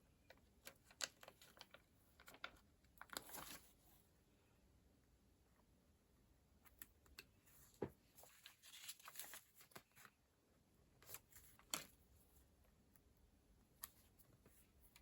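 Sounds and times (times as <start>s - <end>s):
paper rustling: 0.6s - 3.9s, 7.4s - 10.2s, 11.0s - 12.1s.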